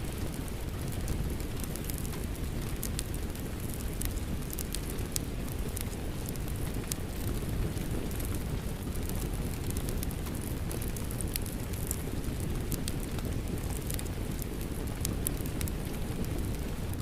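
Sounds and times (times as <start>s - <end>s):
fireplace crackling and popping: 0.0s - 17.0s
rainfall: 0.0s - 17.0s.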